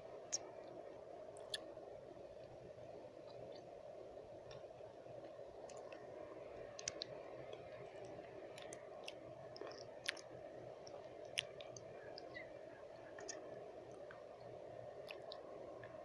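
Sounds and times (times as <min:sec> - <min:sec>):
low white noise hiss: 0:00.0 - 0:16.0
wet mouth clicks and lip smacks: 0:01.4 - 0:01.6, 0:06.8 - 0:07.2, 0:08.6 - 0:12.4.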